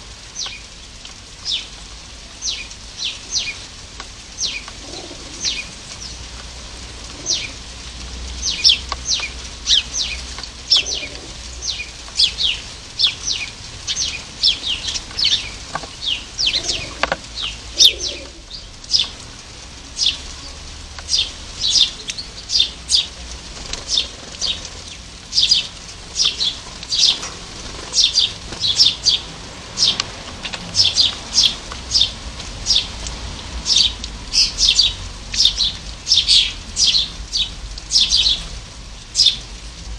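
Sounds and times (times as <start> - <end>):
small birds chirping: 0.3 - 39.5.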